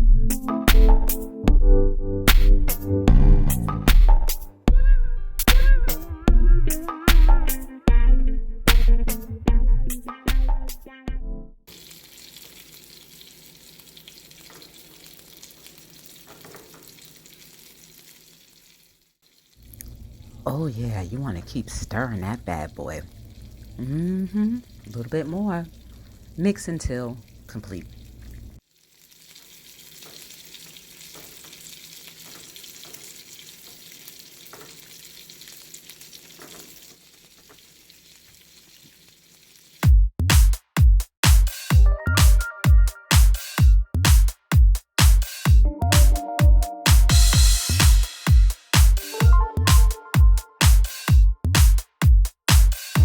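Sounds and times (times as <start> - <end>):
food sizzling in oil: 11.7 - 20.4, 24.4 - 39.8.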